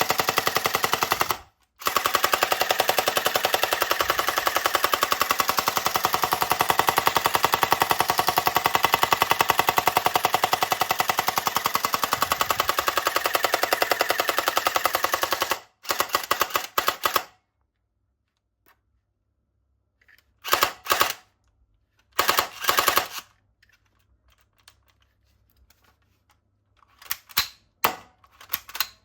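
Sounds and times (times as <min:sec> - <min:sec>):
toy gun rattling: 0:00.0 - 0:17.3, 0:22.2 - 0:24.9.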